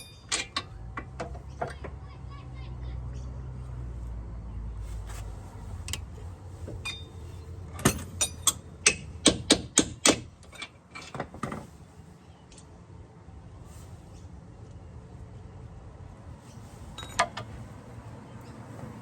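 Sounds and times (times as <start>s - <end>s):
sharp knocks and clicks: 7.8s - 11.6s.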